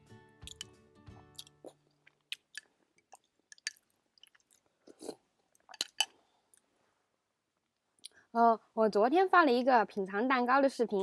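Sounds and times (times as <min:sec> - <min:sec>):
person chewing food: 0:00.4 - 0:06.7.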